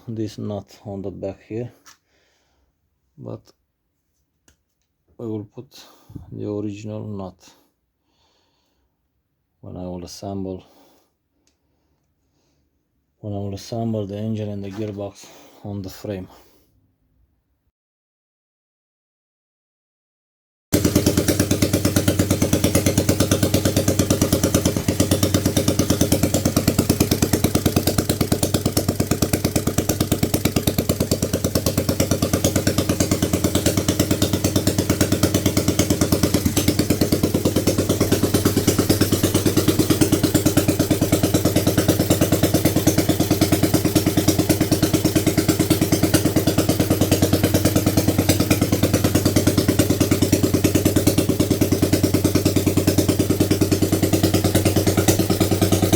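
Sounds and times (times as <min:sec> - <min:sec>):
motorcycle engine idling: 0:20.8 - 0:55.9.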